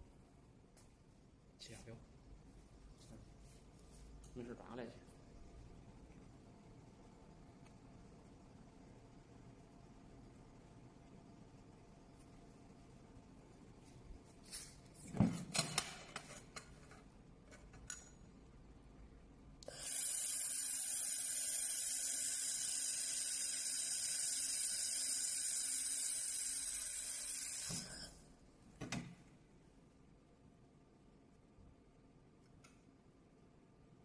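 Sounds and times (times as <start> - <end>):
laser welder hissing: 19.6 - 28.2.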